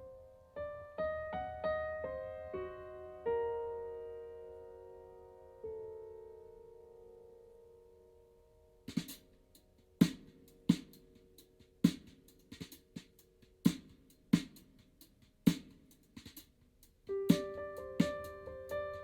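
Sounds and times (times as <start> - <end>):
piano notes and chords: 0.0 - 14.3, 17.1 - 19.0.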